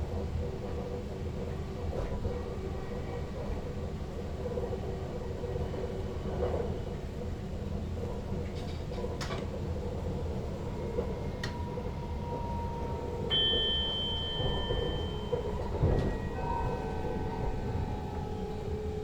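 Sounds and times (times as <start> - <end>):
train cab low rumble: 0.0 - 19.0
click: 11.4 - 11.6
high steady tone: 11.8 - 19.0.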